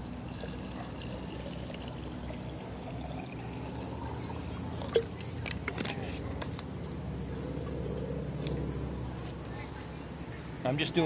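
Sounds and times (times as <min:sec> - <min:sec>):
water pouring into a pot: 0:00.3 - 0:05.1.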